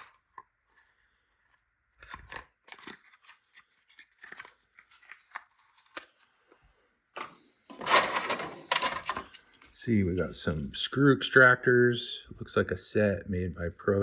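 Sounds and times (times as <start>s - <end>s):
paper packaging crinkling: 2.0s - 6.2s.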